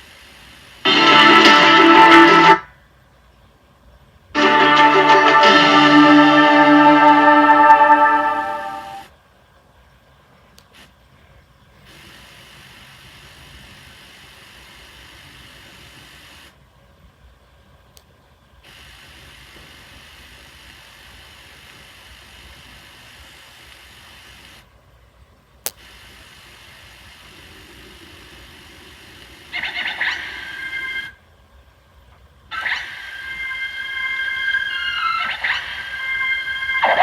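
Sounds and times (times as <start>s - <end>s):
tape hiss and hum: 0.0s - 37.0s
loud sustained high tones: 0.9s - 2.7s, 4.4s - 9.1s, 33.1s - 37.0s.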